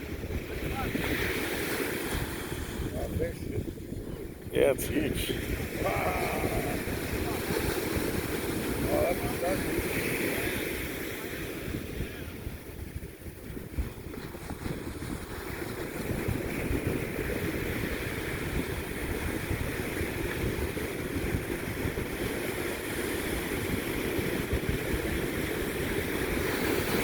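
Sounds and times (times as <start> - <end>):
ocean surf: 0.0 - 3.7, 4.5 - 12.9, 14.4 - 27.0
wind buffeting microphone: 0.0 - 27.0
wind rushing: 2.0 - 9.0.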